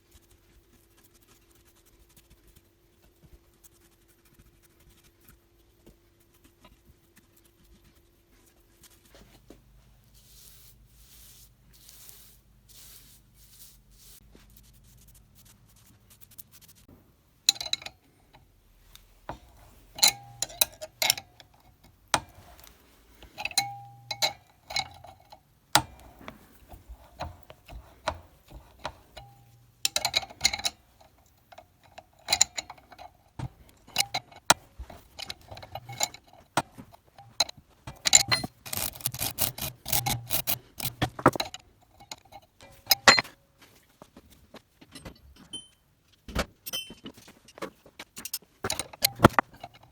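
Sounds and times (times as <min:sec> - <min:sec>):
metallic clinks and taps: 0:17.5 - 0:43.4, 0:46.6 - 0:47.2, 0:48.2 - 0:49.9.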